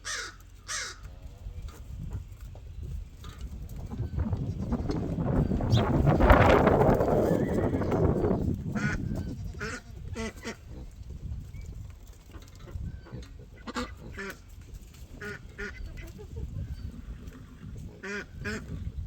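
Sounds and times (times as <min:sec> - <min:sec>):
ducks quacking: 0:08.0 - 0:10.9, 0:12.3 - 0:16.9, 0:17.8 - 0:18.9.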